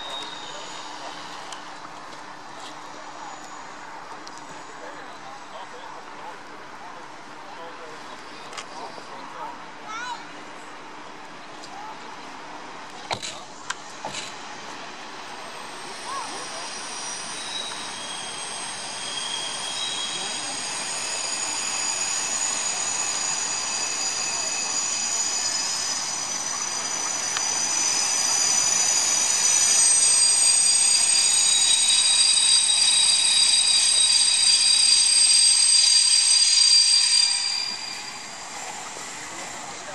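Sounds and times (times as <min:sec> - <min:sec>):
wheels and brakes squealing: 0:00.0 - 0:05.5, 0:15.3 - 0:39.9
train rolling slowly: 0:00.0 - 0:39.9.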